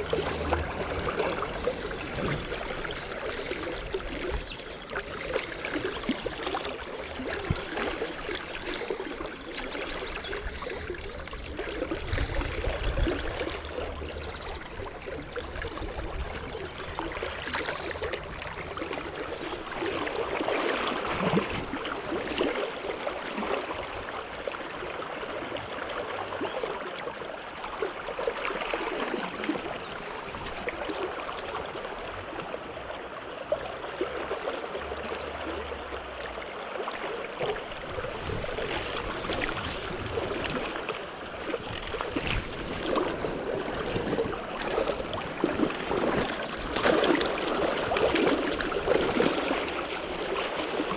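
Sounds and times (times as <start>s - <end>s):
stream water rippling: 0.0s - 50.9s.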